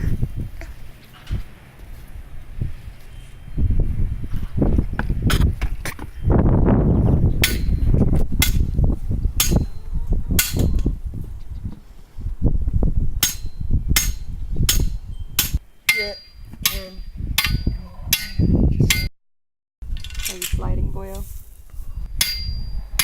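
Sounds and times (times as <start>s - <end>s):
hammer strikes: 13.2s - 19.1s, 22.2s - 22.6s.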